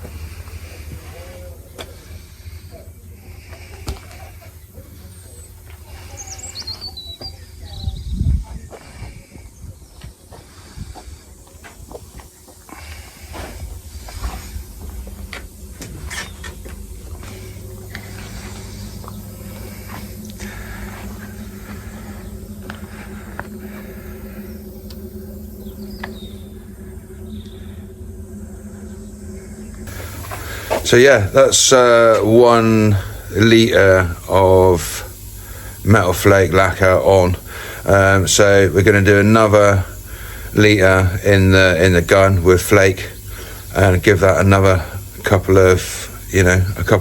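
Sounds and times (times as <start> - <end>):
low rumble: 0.0 - 34.4
air compressor humming: 0.0 - 47.0
high chirps and squeaks: 6.1 - 8.3.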